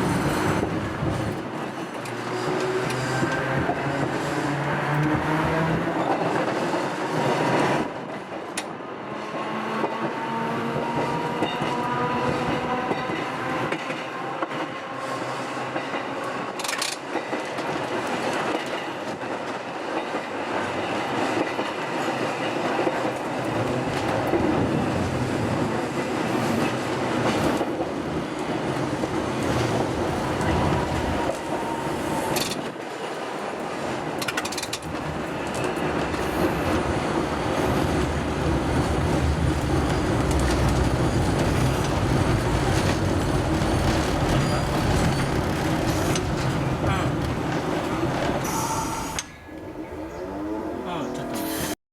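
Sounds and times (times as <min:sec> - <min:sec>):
wheels clicking over rail joints: 0:34.1 - 0:36.2, 0:39.3 - 0:49.7
tram motor whine: 0:36.1 - 0:51.7.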